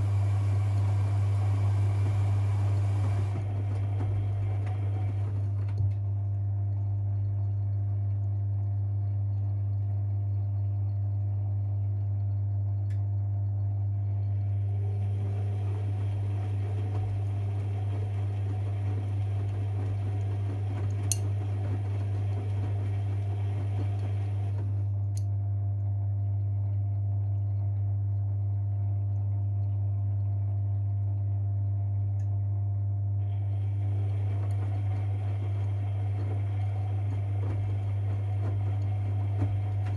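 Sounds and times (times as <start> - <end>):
washing machine drum turning: 0.0 - 5.8, 14.8 - 24.8, 33.6 - 39.9
washing machine hum: 0.0 - 39.9.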